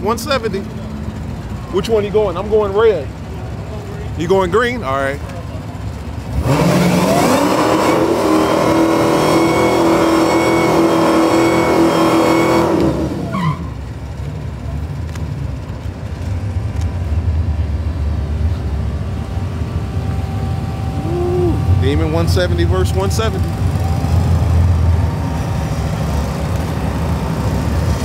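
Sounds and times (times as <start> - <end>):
low engine rumble: 0.0 - 7.1, 12.7 - 28.0
car engine revving: 6.1 - 13.8.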